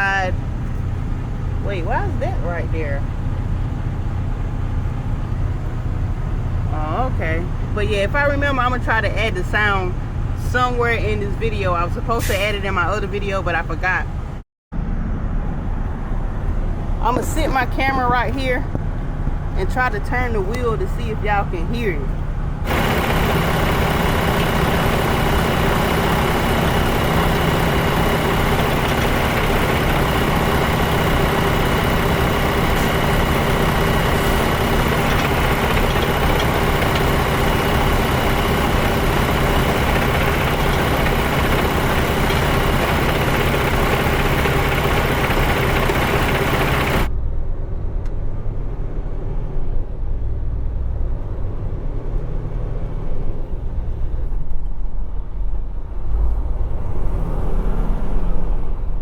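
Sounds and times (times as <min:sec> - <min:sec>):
diesel truck engine idling: 0:00.0 - 0:14.4, 0:15.8 - 0:47.1.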